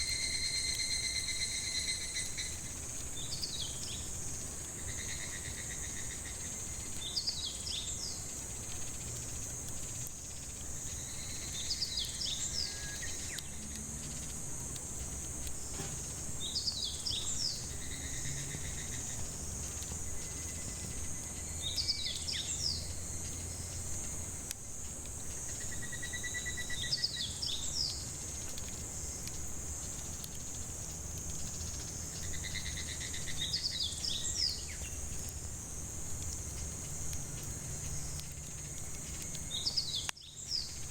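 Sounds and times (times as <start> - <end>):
bird song trill: 0.0 - 4.1, 4.9 - 8.3, 10.9 - 13.6, 16.4 - 19.2, 21.4 - 23.0, 25.6 - 28.0, 32.0 - 35.2, 39.4 - 40.9
cicadas droning: 0.0 - 40.9.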